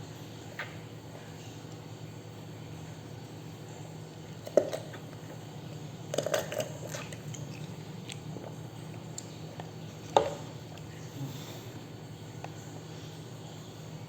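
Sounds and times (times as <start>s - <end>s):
steady low hum: 0.0s - 14.0s
mouth eating and drinking sounds: 4.4s - 11.8s.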